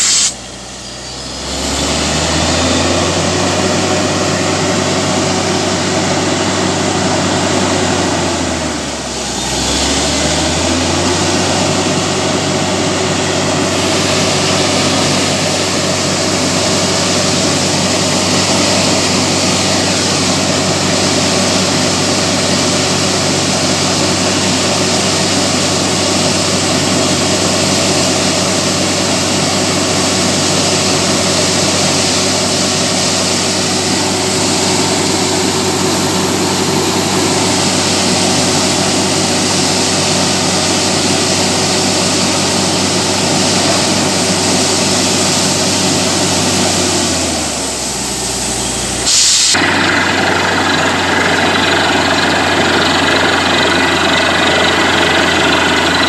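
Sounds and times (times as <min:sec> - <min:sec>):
rushing hiss: 0:00.0 - 0:00.4, 0:49.0 - 0:49.7
drilling rig engine drone: 0:00.0 - 0:56.0.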